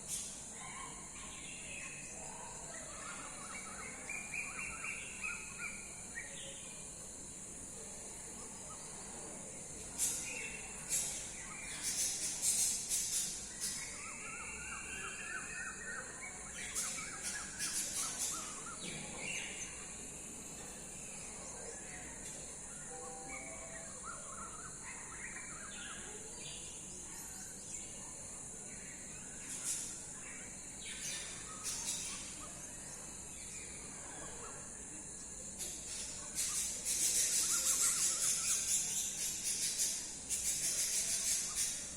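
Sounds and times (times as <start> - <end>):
steady high-pitched hiss: 0.0 - 41.9
birds chirping and calling: 10.0 - 19.7, 30.8 - 33.7, 35.6 - 41.9.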